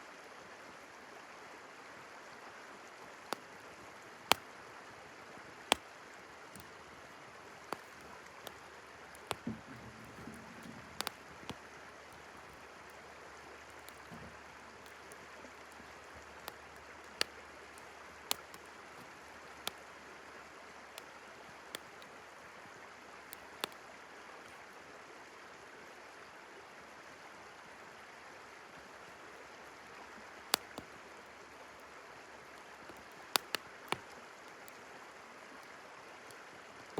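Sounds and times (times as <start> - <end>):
river flowing: 0.0 - 36.9
campfire crackling and popping: 3.2 - 4.7, 5.5 - 20.1, 20.8 - 22.2, 23.2 - 24.6, 30.4 - 34.8.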